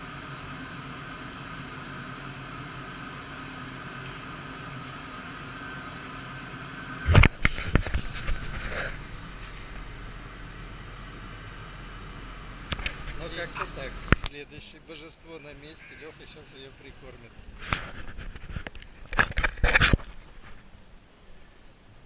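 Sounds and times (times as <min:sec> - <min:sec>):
electric motor hum: 0:00.0 - 0:14.3.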